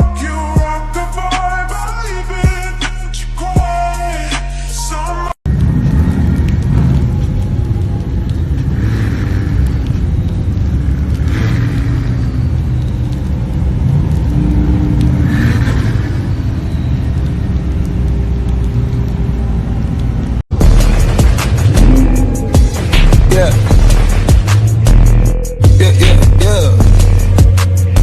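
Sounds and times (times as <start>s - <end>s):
car engine rumbling: 5.5s - 27.8s.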